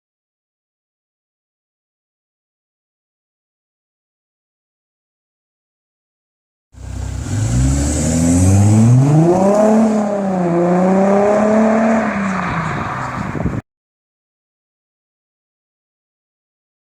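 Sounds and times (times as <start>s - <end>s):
diesel engine accelerating: 6.8s - 13.6s.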